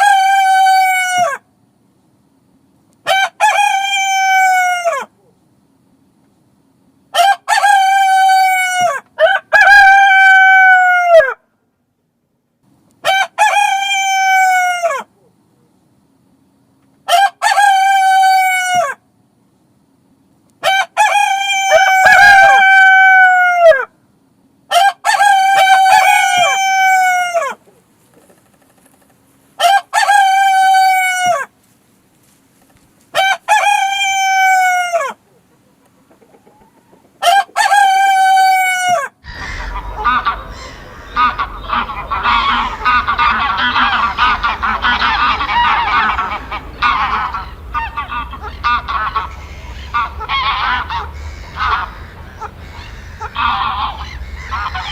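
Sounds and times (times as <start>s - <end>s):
flock of fowl calling: 0.0s - 1.4s, 7.2s - 11.4s, 17.1s - 19.0s, 20.6s - 23.9s, 24.7s - 28.9s, 29.6s - 31.6s, 32.2s - 54.9s
rooster crowing: 0.0s - 1.4s, 3.1s - 5.1s, 7.2s - 11.4s, 13.0s - 15.1s, 17.1s - 19.0s, 20.6s - 23.9s, 24.7s - 27.6s, 29.6s - 31.5s, 33.1s - 35.2s, 36.4s - 54.9s.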